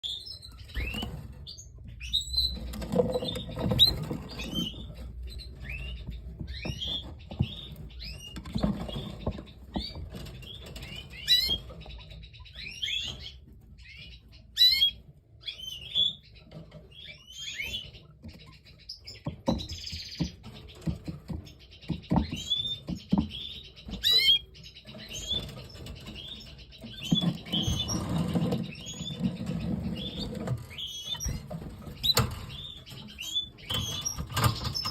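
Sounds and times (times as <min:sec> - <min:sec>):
canaries chirping: 0:00.0 - 0:34.9
sharp clicks and knocks: 0:02.4 - 0:12.2, 0:18.2 - 0:34.9.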